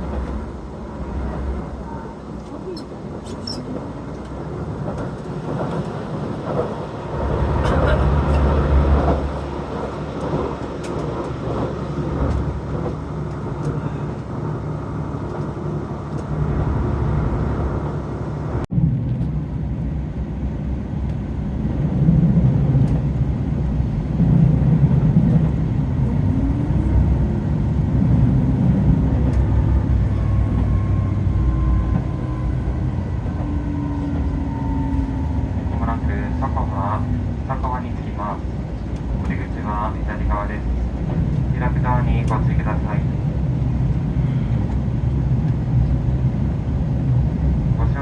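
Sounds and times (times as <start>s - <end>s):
railcar engine and wheel rumble: 0.0s - 48.0s
train slowing whine: 24.8s - 47.8s.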